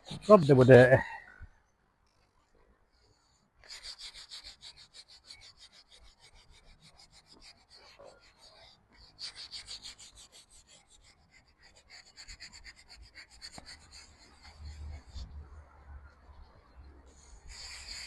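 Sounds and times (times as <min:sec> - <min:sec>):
hand scrubbing leather: 0:03.7 - 0:15.0.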